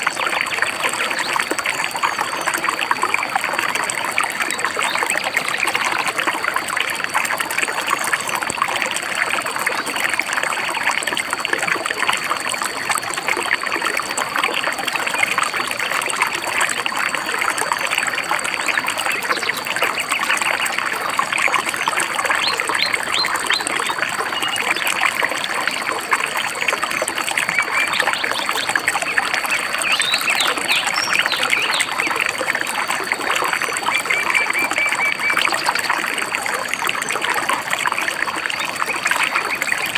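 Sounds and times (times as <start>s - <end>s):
stream babbling: 0.0s - 39.9s
small birds chirping: 27.0s - 32.4s.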